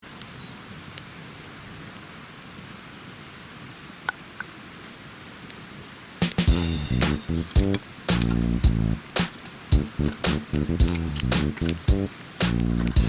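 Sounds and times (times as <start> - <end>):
rain falling: 5.0 - 13.0
guitar music: 6.5 - 9.0.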